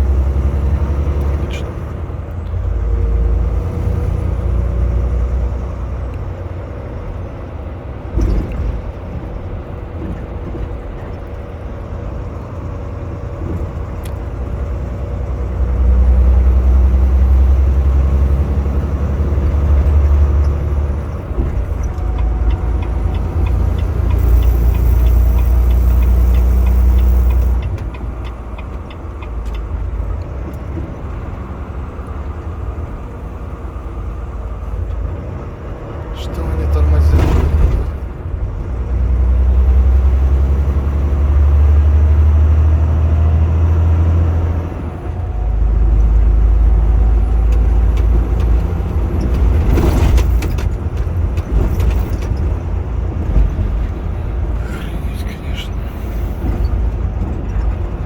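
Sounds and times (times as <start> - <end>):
truck engine and road rumble: 0.0 - 58.0.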